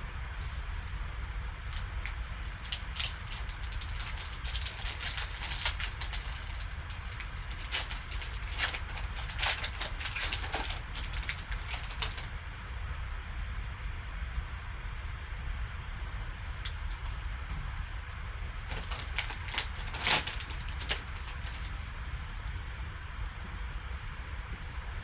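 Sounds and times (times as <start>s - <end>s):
steady low hum: 0.0s - 25.0s
wrapper crinkling and tearing: 1.8s - 12.3s, 18.7s - 21.8s.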